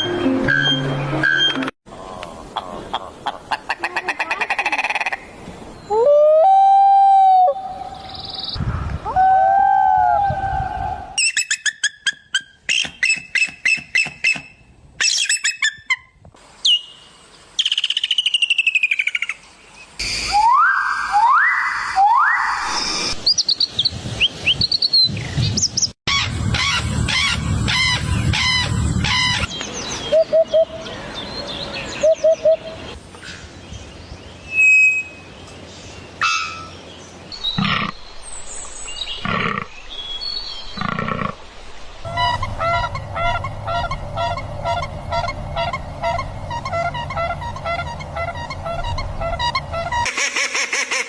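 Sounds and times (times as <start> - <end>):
whistled rising bird notes: 20.0 - 32.8, 34.4 - 35.3.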